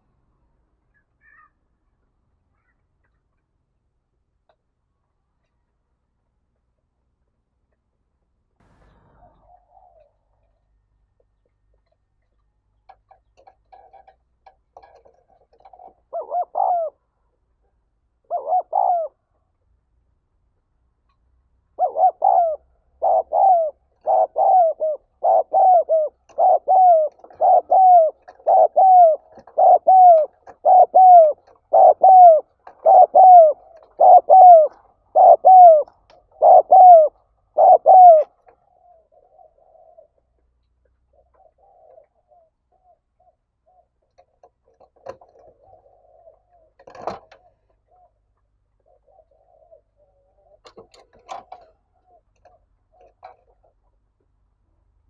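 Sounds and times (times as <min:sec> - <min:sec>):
dove cooing: 0:08.9 - 0:10.7, 0:14.8 - 0:17.4, 0:18.2 - 0:19.5, 0:21.7 - 0:53.7.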